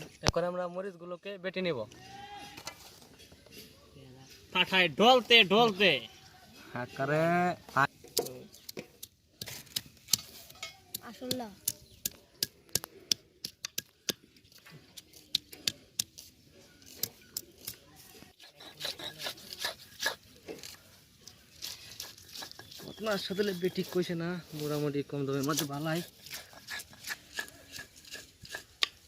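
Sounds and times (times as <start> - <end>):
stone roller grinding on stone slab: 25.5 - 29.0.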